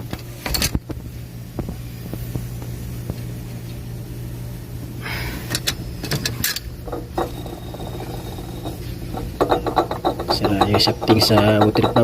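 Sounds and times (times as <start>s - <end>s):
engine running with low hum: 0.0s - 12.0s.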